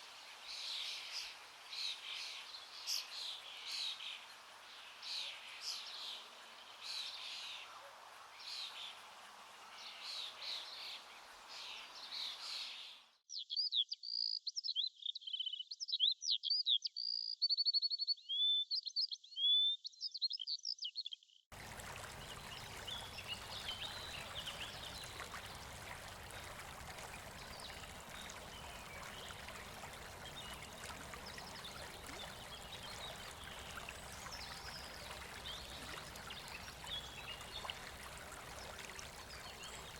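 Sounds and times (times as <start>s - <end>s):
running water rushing: 21.5s - 39.9s.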